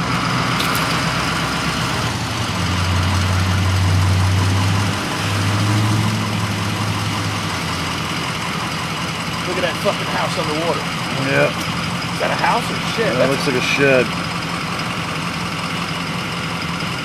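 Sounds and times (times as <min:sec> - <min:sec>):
deep engine drone: 0:00.0 - 0:17.0
vehicle engine from inside cabin: 0:00.0 - 0:17.0.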